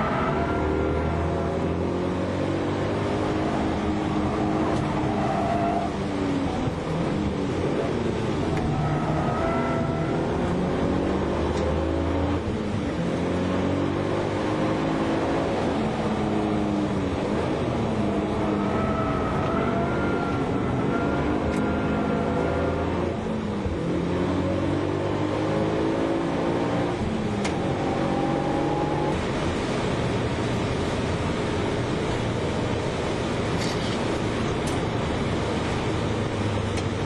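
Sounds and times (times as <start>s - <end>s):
car engine revving from cabin: 0.3s - 29.2s.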